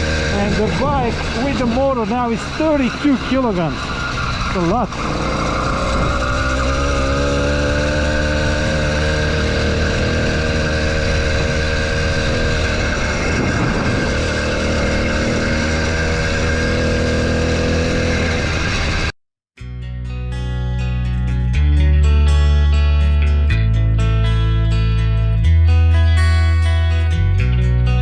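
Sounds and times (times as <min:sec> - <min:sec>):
two-stroke bicycle engine running: 0:00.0 - 0:19.1.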